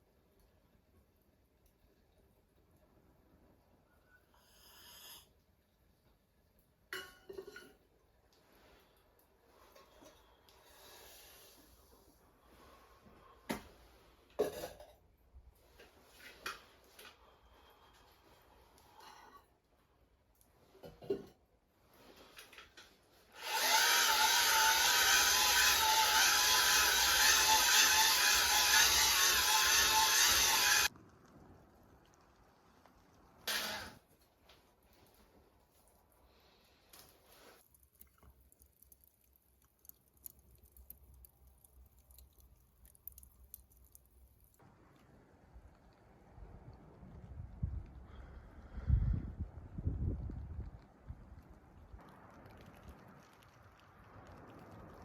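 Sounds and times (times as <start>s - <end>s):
soft rustle: 34.0s - 44.6s.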